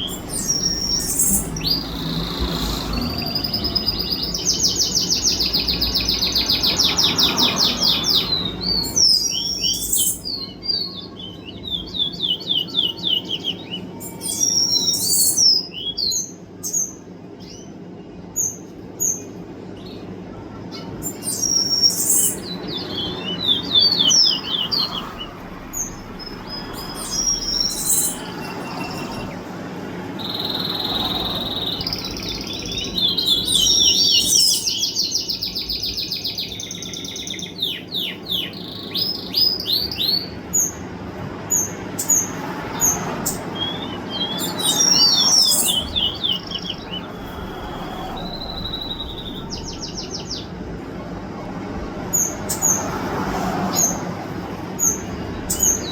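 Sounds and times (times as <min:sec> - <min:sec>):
small songbird singing: 0:00.0 - 0:50.7, 0:53.7 - 0:55.9.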